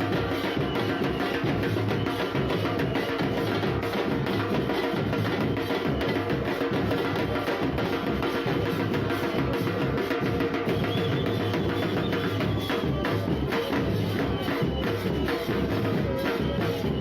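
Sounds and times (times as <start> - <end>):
drum band playing percussion: 0.0 - 17.0.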